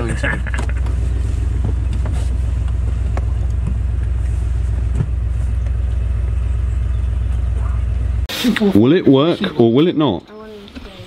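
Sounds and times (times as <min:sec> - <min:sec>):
car engine idling: 0:00.0 - 0:08.7.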